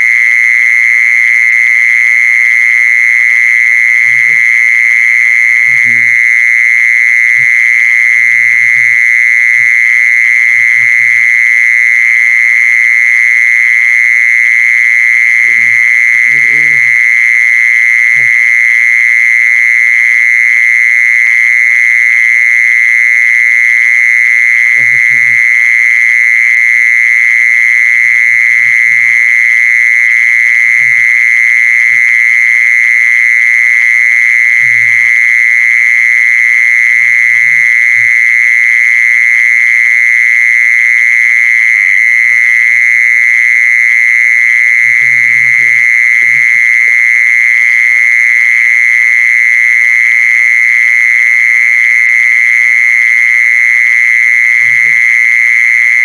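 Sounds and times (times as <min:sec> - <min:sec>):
insect high-pitched trill: 0:00.0 - 0:49.6, 0:50.3 - 0:56.0.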